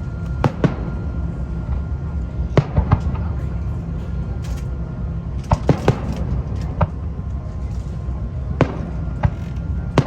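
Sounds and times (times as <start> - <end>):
steady low rumble: 0.0 - 10.0
fireworks bangs: 8.6 - 10.0.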